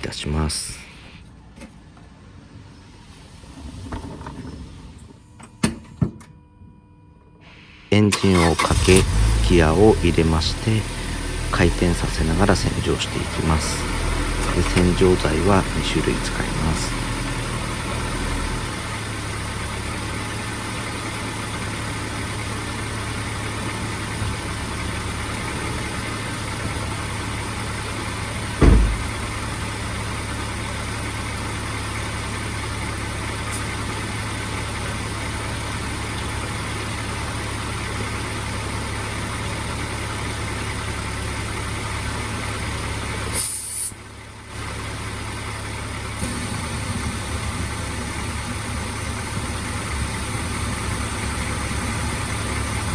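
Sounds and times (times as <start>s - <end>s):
car engine idling: 7.5s - 43.4s, 44.0s - 52.9s
loud thump: 28.6s - 29.7s
brief hiss: 43.4s - 44.0s.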